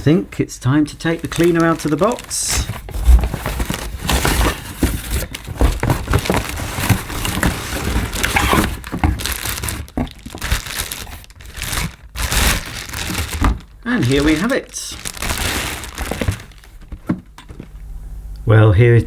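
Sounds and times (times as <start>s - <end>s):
packaging crinkling and rustling: 0.0s - 17.8s
knocks and scrapes: 1.0s - 10.5s.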